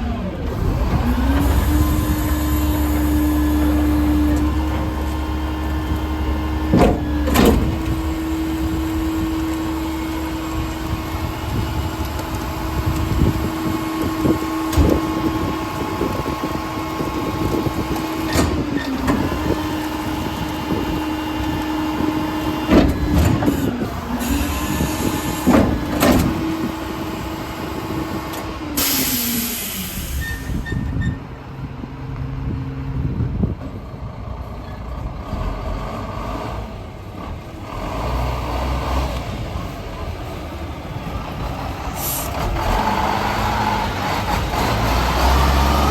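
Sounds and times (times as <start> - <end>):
garbage truck engine whine: 0.0 - 45.9
metal bangs and clunks: 6.6 - 8.2, 22.6 - 26.8
sharp air hiss: 28.8 - 30.6, 42.0 - 42.4.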